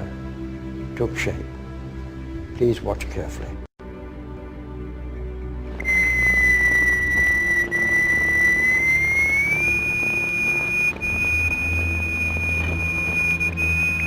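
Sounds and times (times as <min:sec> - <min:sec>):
high electronic tone: 0:05.8 - 0:14.0.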